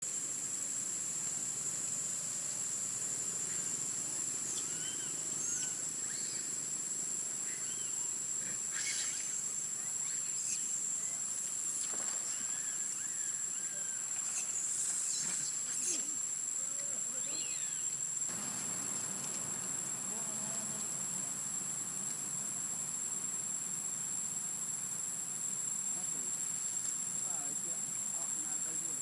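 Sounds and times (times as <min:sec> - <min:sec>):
insects droning: 0:00.0 - 0:29.0
squeaky calls: 0:04.4 - 0:06.6, 0:07.4 - 0:08.1, 0:08.7 - 0:10.7, 0:12.2 - 0:16.1, 0:17.1 - 0:17.9.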